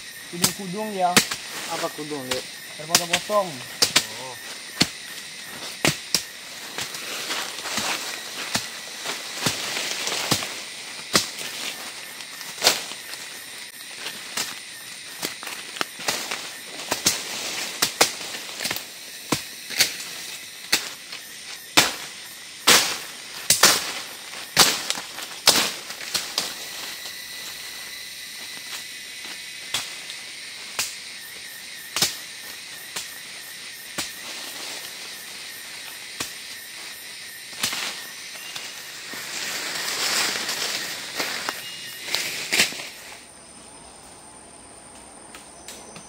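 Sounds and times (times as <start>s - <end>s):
forest insects droning: 0.0s - 46.0s
sharp cracks and knocks: 0.4s - 1.6s, 2.2s - 13.2s, 15.2s - 26.6s, 29.6s - 31.0s, 31.9s - 32.3s, 36.1s - 36.4s, 37.5s - 38.7s.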